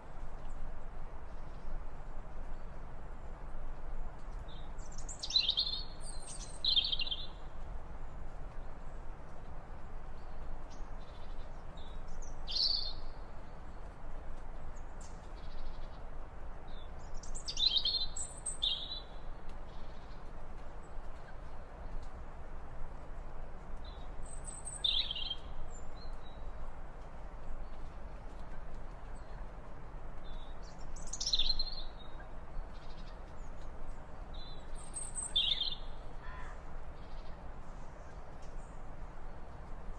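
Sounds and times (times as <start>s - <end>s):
steady background hiss: 0.0s - 39.9s
bird chirping: 4.5s - 7.4s, 16.7s - 20.2s, 23.8s - 26.4s, 30.2s - 33.7s, 34.3s - 37.4s.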